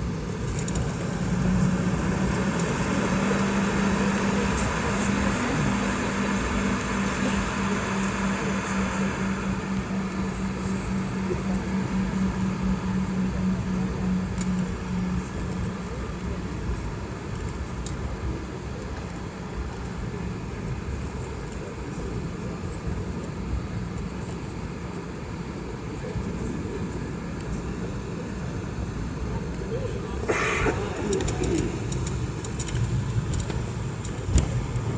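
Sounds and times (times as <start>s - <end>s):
low hum: 0.0s - 16.9s, 29.7s - 34.9s
jet airliner cabin noise: 0.0s - 34.9s.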